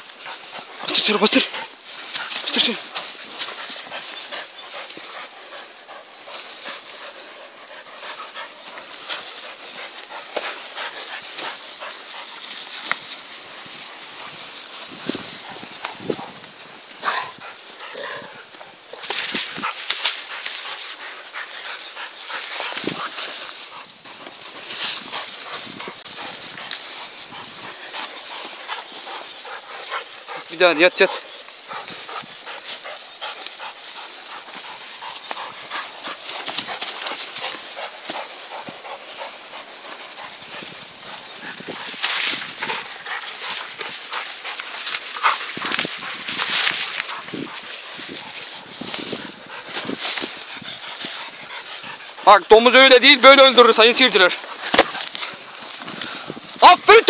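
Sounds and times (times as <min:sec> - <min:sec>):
dogs growling: 0:00.0 - 0:52.3
scuffling and rustling: 0:00.0 - 0:57.0.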